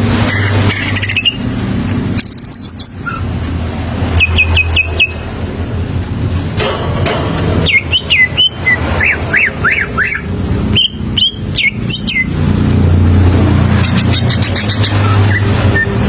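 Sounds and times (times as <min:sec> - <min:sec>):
bird whistling song: 0:00.3 - 0:01.4, 0:02.2 - 0:03.2, 0:04.2 - 0:05.2, 0:07.6 - 0:12.4, 0:13.8 - 0:16.0.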